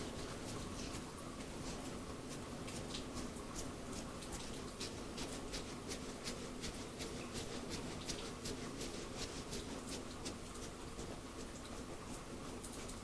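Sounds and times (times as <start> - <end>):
hair being rubbed crackling: 0.0 - 10.9.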